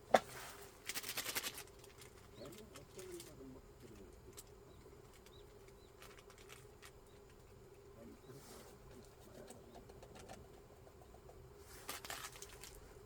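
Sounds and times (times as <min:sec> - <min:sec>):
sharp clicks and crackles: 0:00.8 - 0:07.8.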